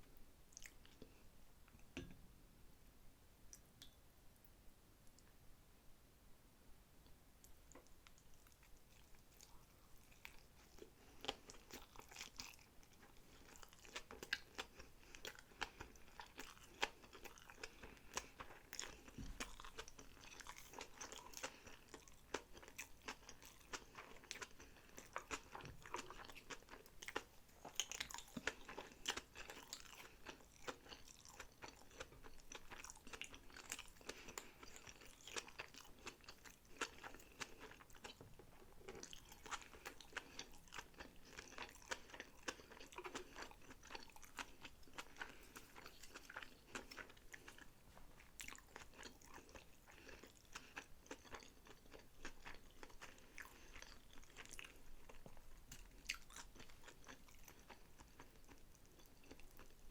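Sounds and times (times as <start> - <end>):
close-up chewing: 7.4 - 59.9.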